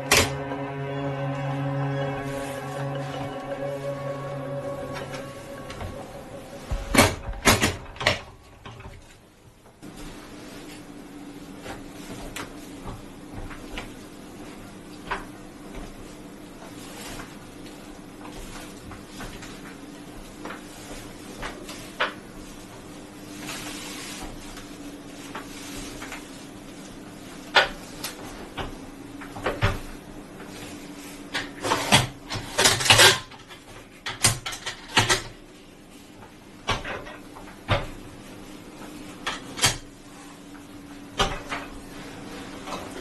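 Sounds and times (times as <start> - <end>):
scraping and rustling: 15.9 - 28.8.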